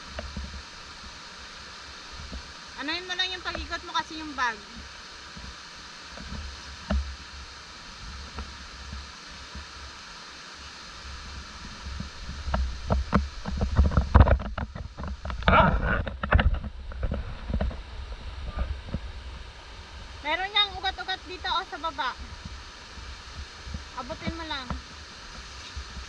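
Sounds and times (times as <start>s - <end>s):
mountain stream running: 0.0s - 26.0s
knocks and scrapes on rocks: 12.4s - 17.8s.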